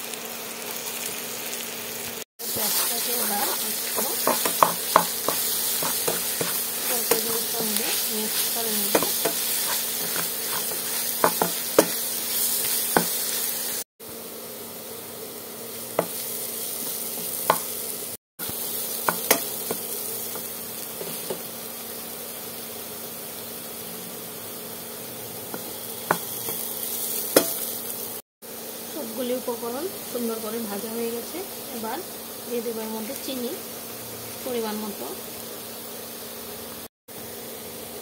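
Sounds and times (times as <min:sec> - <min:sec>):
food sizzling in hot oil: 0:00.0 - 0:38.0
spatula clicking and scraping pan: 0:02.6 - 0:13.4, 0:19.0 - 0:21.5.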